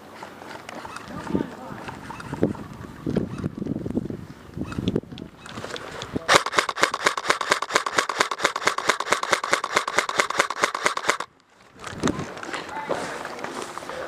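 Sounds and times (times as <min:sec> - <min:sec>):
airsoft gun full-auto burst: 0:06.3 - 0:11.3.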